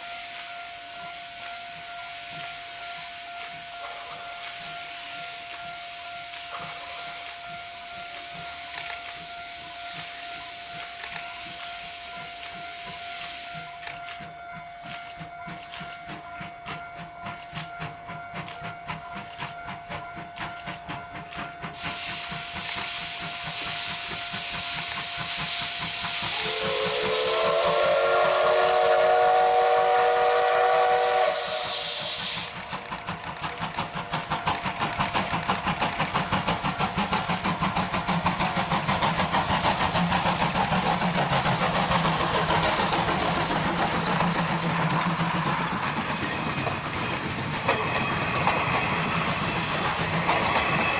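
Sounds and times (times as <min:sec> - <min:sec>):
beats of moving train: 0:00.0 - 0:50.9
steam venting hiss: 0:00.0 - 0:50.9
train whistle blast: 0:21.7 - 0:32.6.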